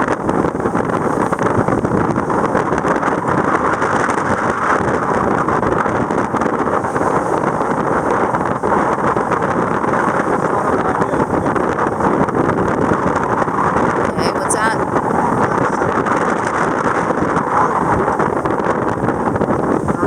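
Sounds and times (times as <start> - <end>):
sailboat moving through water: 0.0 - 20.0
wind on microphone: 0.0 - 20.0.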